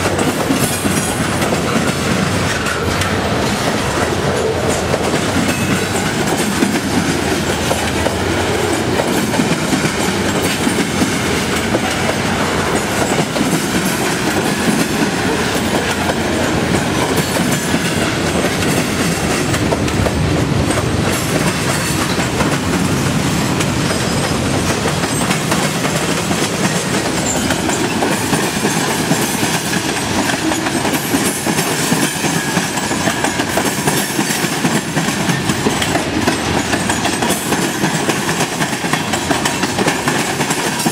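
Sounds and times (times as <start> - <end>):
freight train wheels clacking: 0.0 - 40.9.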